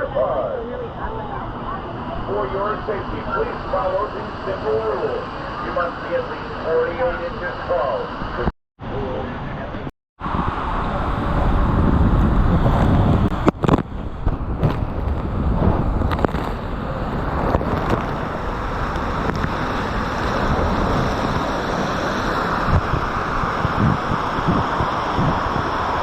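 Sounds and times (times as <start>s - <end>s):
water splashing and rushing: 10.2s - 26.0s
wind buffeting microphone: 10.2s - 26.0s.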